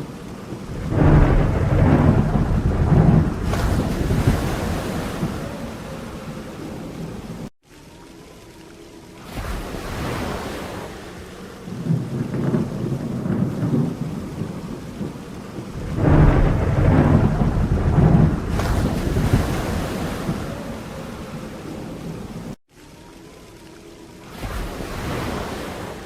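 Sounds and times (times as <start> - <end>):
steady rain: 0.0 - 26.0
rolling thunder: 0.5 - 7.5, 11.7 - 22.6.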